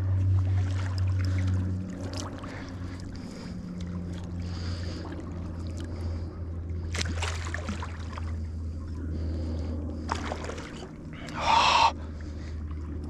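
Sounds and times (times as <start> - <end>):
steady low hum: 0.0 - 13.0
water splashing: 10.0 - 13.0.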